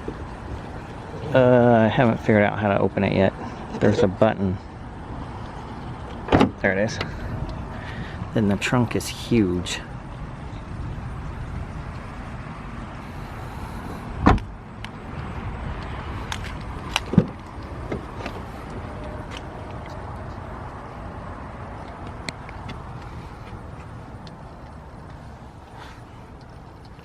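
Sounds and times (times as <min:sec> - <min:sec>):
car trunk thud: 0:06.2 - 0:06.6, 0:14.2 - 0:14.6, 0:17.0 - 0:18.4.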